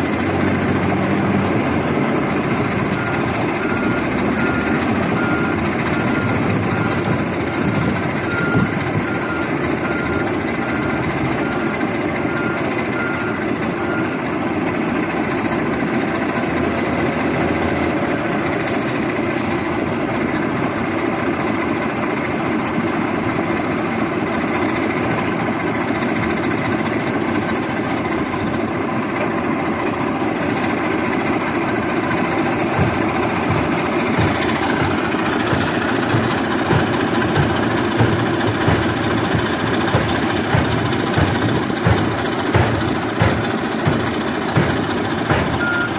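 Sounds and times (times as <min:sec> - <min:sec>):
diesel engine running: 0:00.0 - 0:45.9
short beeps: 0:45.6 - 0:45.9.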